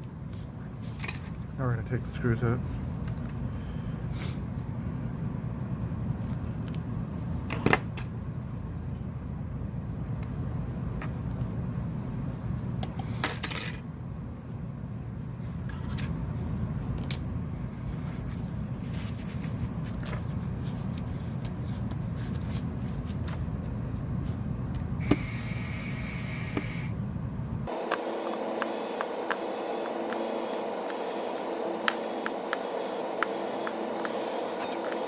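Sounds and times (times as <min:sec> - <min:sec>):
steady low hum: 0:00.0 - 0:35.0
high steady whine: 0:25.0 - 0:35.0
screwdriver clicking and scraping: 0:27.9 - 0:35.0.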